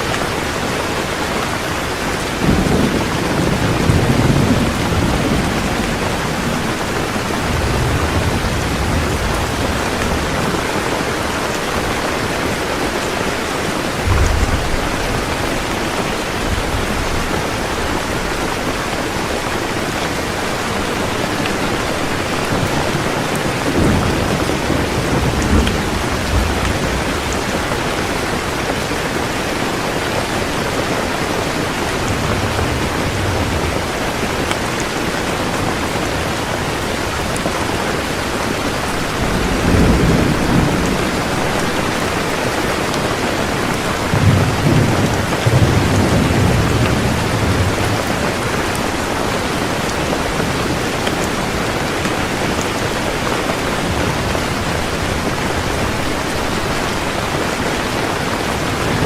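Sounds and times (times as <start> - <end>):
heavy rain pouring: 0.0 - 59.0
low rolls of thunder: 1.8 - 12.9, 13.8 - 19.4, 20.2 - 29.1, 31.4 - 35.9, 38.6 - 51.3.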